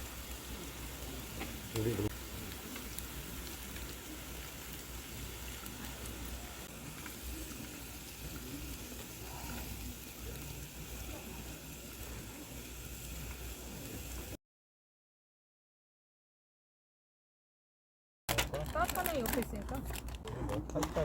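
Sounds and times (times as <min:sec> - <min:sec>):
meat sizzling on a grill: 0:00.0 - 0:14.4
wood fire crackling: 0:00.0 - 0:14.4, 0:18.3 - 0:21.0.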